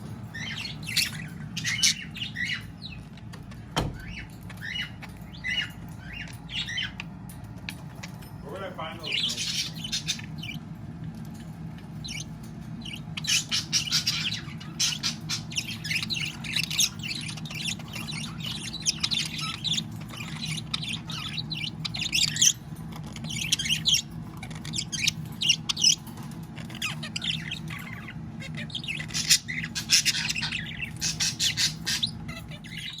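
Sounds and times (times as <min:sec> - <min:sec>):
steady low hum: 0:00.0 - 0:33.0
budgerigar chattering and warbling: 0:00.3 - 0:02.7, 0:09.0 - 0:10.6, 0:12.9 - 0:26.0, 0:26.6 - 0:33.0.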